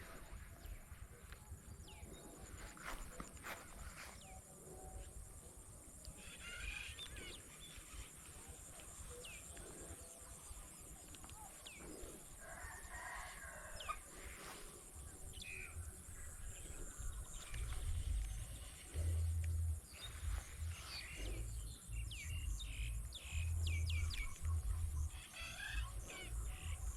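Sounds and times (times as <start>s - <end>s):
faint bird calls: 0.0s - 26.9s
steady low rumble: 15.0s - 25.1s.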